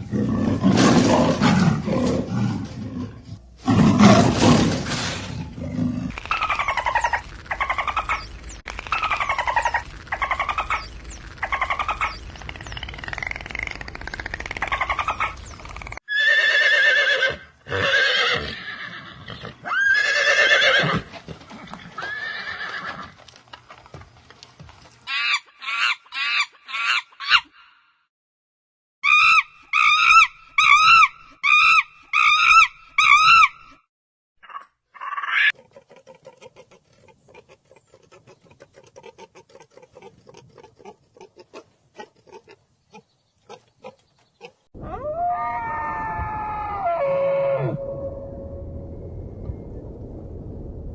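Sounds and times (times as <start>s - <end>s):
horse whinnying loudly: 16.1s - 21.1s, 22.0s - 23.2s, 44.9s - 47.9s.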